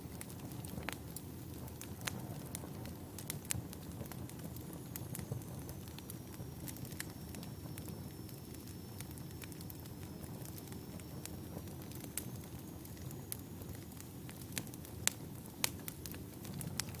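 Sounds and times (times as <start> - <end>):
fire crackling and popping: 0.0 - 17.0
low rumble of flames: 0.0 - 17.0
faint high whine: 3.6 - 17.0.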